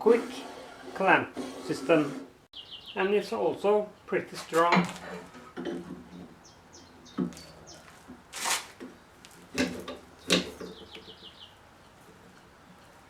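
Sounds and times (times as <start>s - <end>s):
small birds chirping: 2.5s - 4.2s, 5.9s - 8.2s, 10.1s - 12.9s.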